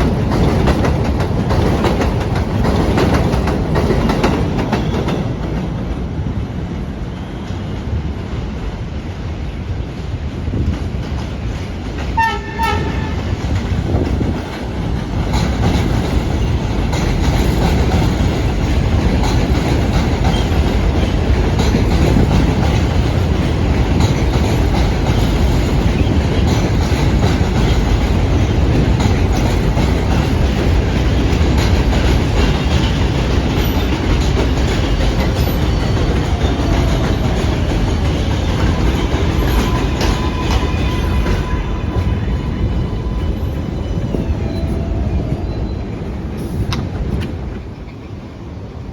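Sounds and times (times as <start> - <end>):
train wheels rumbling on track: 0.0 - 48.9
train horn: 12.2 - 13.4, 38.5 - 43.8.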